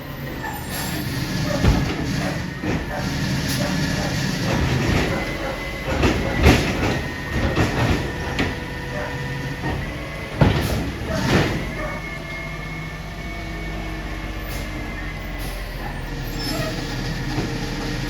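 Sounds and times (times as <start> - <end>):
garbage truck engine rumbling: 0.0 - 18.0
metal clanks and knocks: 0.8 - 12.0.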